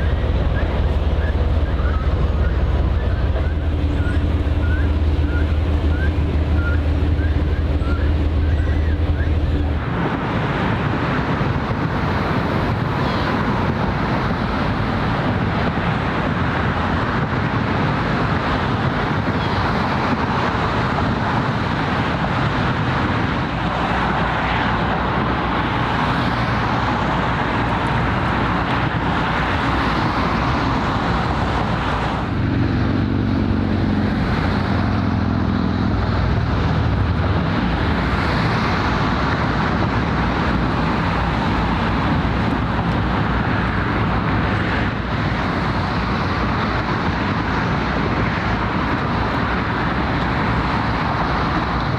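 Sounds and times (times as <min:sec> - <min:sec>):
low droning hum: 0:00.0 - 0:09.9
road traffic noise: 0:00.0 - 0:51.9.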